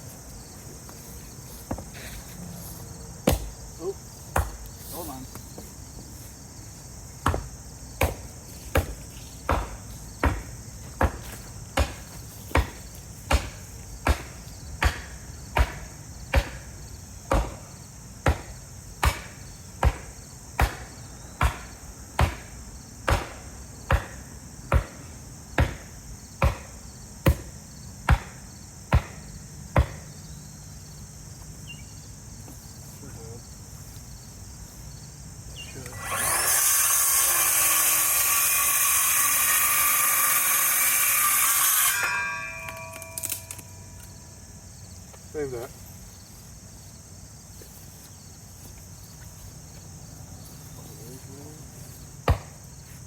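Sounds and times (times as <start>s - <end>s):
crickets chirring: 0.0s - 53.0s
hammer blows on wood: 7.2s - 16.7s, 17.3s - 25.0s.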